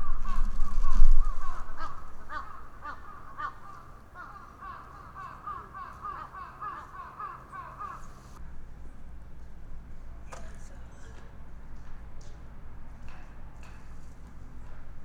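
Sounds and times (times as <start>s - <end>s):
bird calling rapidly: 0.0s - 8.4s.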